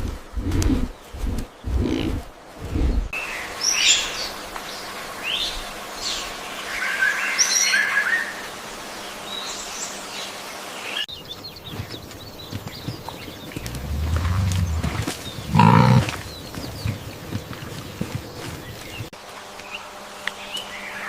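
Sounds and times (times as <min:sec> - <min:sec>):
birds chirping and singing: 0:00.0 - 0:04.4, 0:09.3 - 0:21.0
steady outdoor hiss: 0:00.0 - 0:21.0
deep pulsing animal call: 0:13.6 - 0:16.2.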